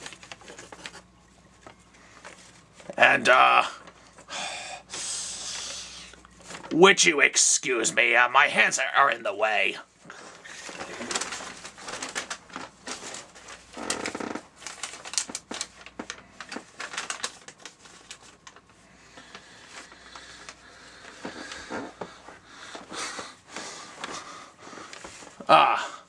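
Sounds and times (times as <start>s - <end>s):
paper crinkling and rustling: 0.0s - 3.1s, 6.3s - 7.0s, 10.0s - 25.5s.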